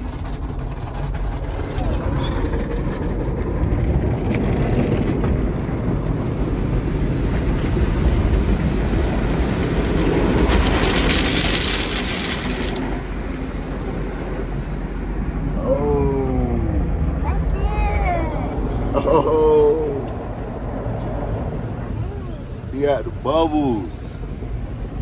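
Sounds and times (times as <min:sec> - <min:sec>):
car wash rumbling: 0:00.0 - 0:25.0
water spray hissing on car: 0:06.0 - 0:15.2.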